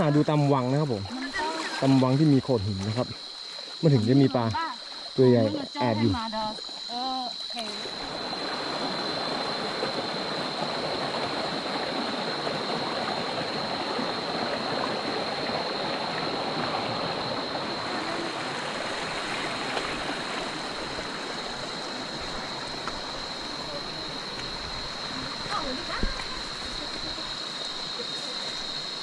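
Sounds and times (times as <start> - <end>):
stream rushing over rocks: 7.4 - 29.0.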